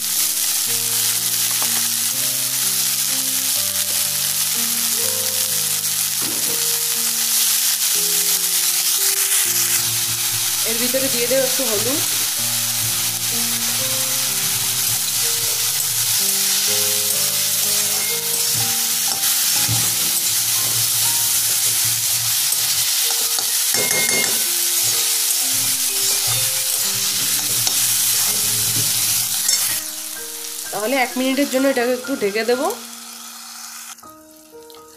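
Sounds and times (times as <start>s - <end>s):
soft background music: 0.0s - 34.9s
vegetables sizzling in oil: 0.0s - 34.9s
metal spatula scraping pan: 14.8s - 30.0s.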